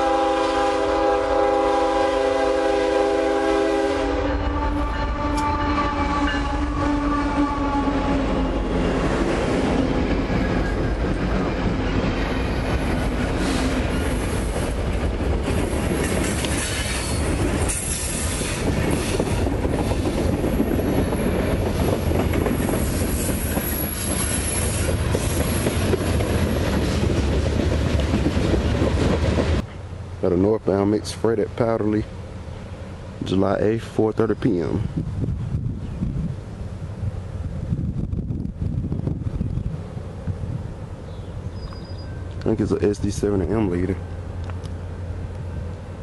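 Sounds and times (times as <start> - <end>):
train horn: 0.0 - 8.6
diesel locomotive engines: 0.0 - 46.0
steel wheels clattering and squealing: 16.0 - 19.4, 22.3 - 26.2.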